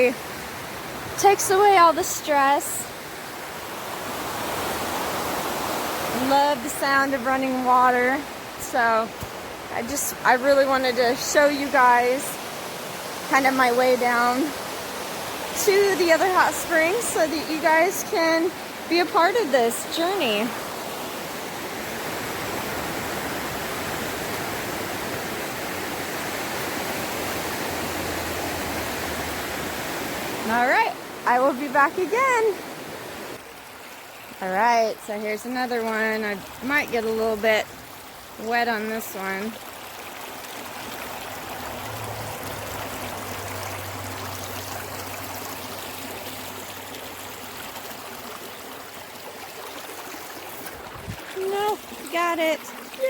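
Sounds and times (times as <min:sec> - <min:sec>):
creek water rushing: 0:00.0 - 0:53.0.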